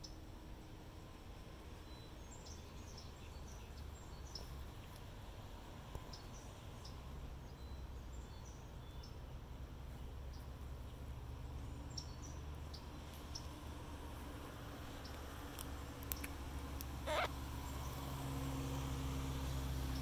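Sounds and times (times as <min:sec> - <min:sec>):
low steady rumble: 0:00.0 - 0:20.0
high bird chirps: 0:17.0 - 0:17.3.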